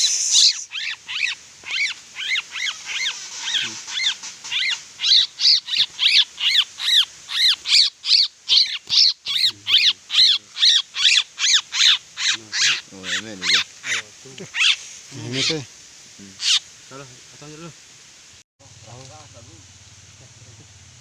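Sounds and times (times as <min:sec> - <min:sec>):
bird call: 0:00.0 - 0:15.6.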